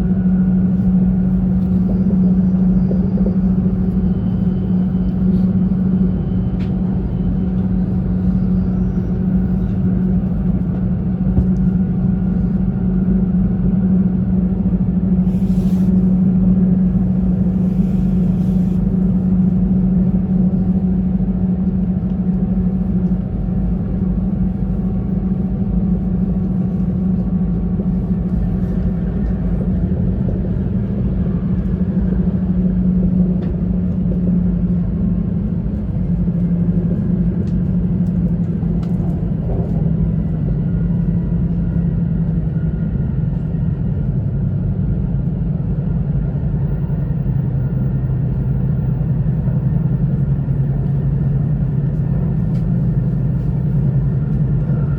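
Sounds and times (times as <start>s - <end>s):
low hum: 0.0s - 54.9s
train running rumble: 0.0s - 54.9s.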